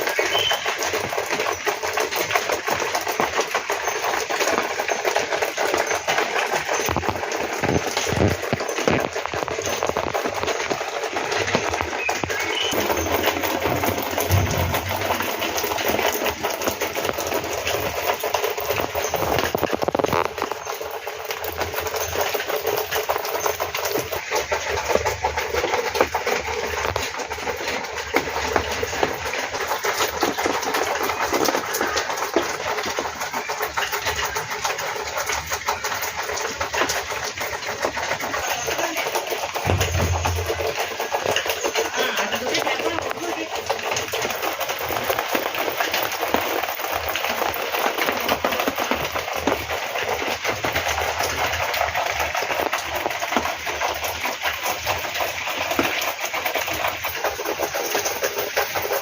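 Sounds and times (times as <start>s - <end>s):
motorcycle engine running: 39.6s - 43.5s.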